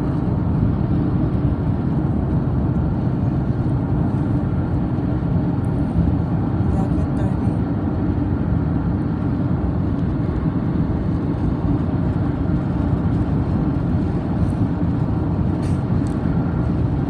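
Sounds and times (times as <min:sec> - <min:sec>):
car driving rumble: 0:00.0 - 0:17.0.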